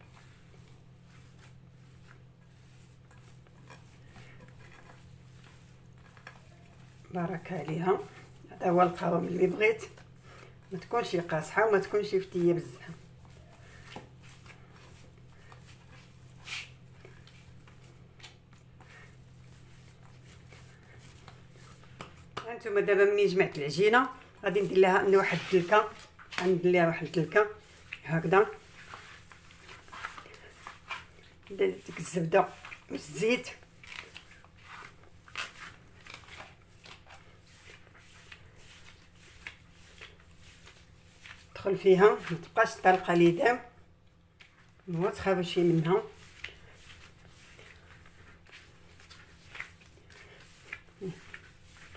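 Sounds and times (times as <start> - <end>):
hands kneading dough: 0.0 - 51.9
hands pressing dough: 19.9 - 22.5.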